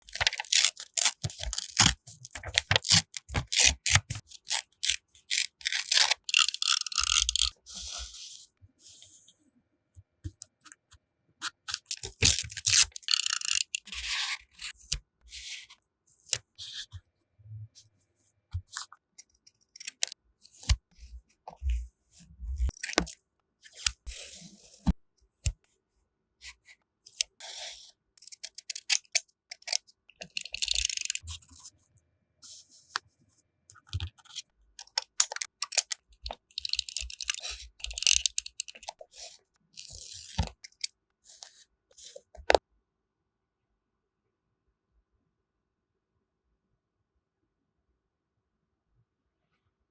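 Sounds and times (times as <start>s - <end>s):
paper rustling and tearing: 0.0s - 8.3s, 11.8s - 14.1s
scissors snipping: 0.1s - 7.5s, 19.8s - 20.2s.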